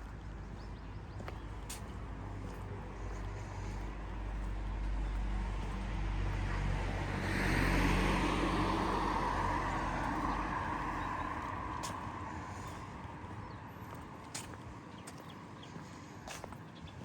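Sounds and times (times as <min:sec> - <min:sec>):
car passing by: 0:04.5 - 0:13.8.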